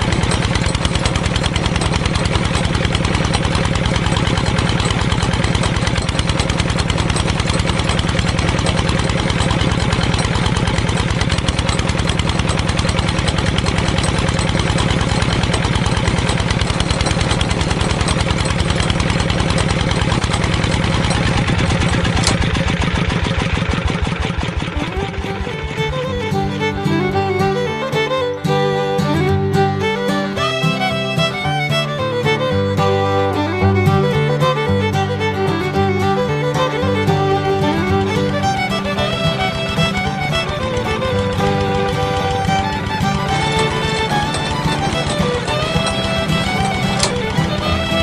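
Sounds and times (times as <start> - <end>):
small engine running: 0.0 - 48.0.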